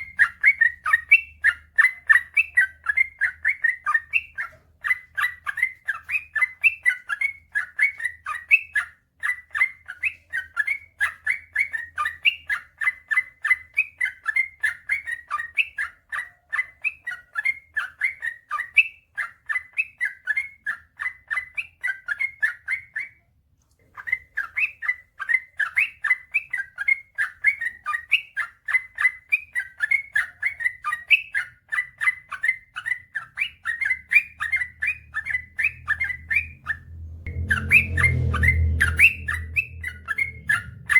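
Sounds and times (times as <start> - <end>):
bulbul singing rapid chirps: 24.0 - 40.9.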